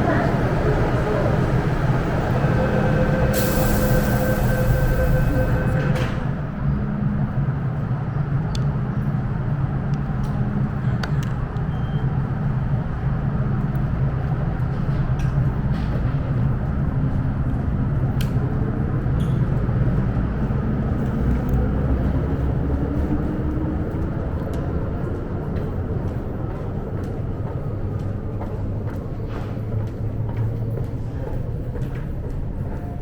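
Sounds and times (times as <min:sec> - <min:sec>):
station low rumble and hum: 0:00.0 - 0:33.0
train motor whine rising: 0:01.9 - 0:06.6.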